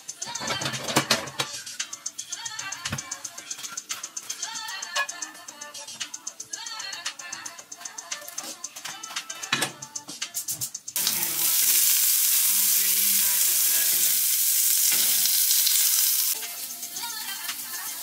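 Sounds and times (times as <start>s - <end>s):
background music with a beat: 0.0s - 15.7s, 16.3s - 18.0s
onions sizzling in hot oil: 11.0s - 18.0s.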